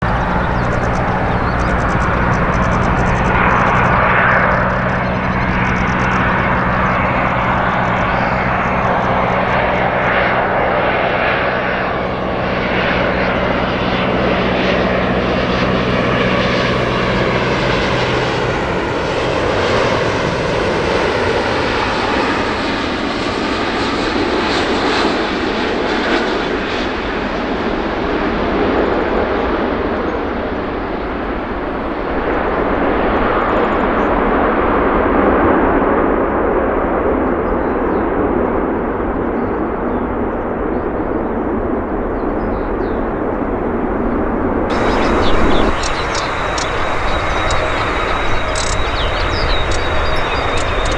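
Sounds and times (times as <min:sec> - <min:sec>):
low hum: 0:00.0 - 0:21.0, 0:41.7 - 0:50.9
jet engines roaring: 0:00.0 - 0:34.8, 0:40.6 - 0:50.9.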